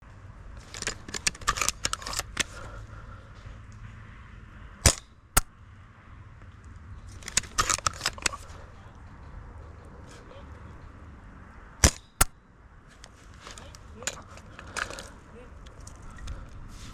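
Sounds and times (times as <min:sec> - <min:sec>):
airsoft guns firing pops: 0:11.8 - 0:12.4.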